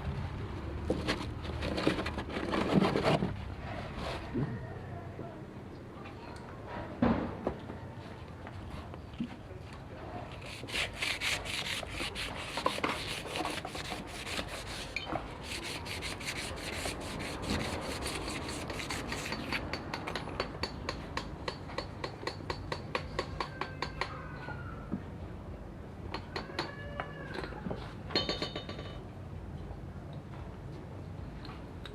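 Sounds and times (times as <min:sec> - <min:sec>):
hand sanding strokes: 0:10.4 - 0:19.6.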